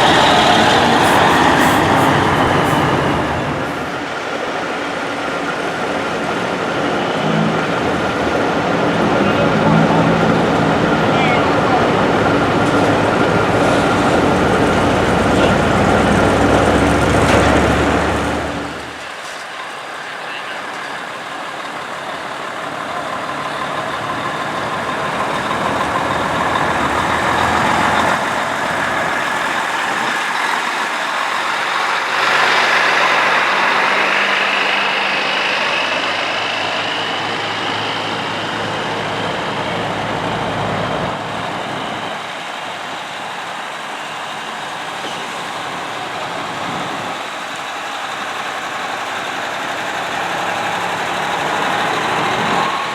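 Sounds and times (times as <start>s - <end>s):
whine rising in pitch: 0.0s - 4.2s
diesel truck engines passing: 0.0s - 52.9s.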